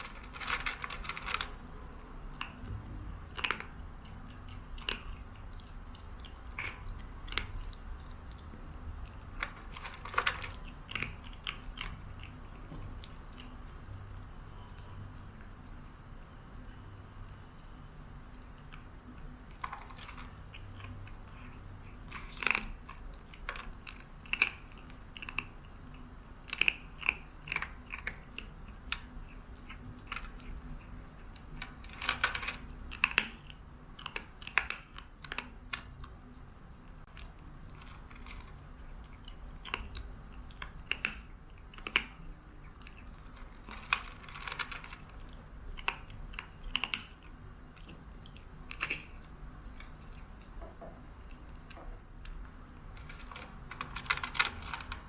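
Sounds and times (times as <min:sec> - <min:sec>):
crisp chewing crunches: 0:18.6 - 0:36.4, 0:37.0 - 0:50.6.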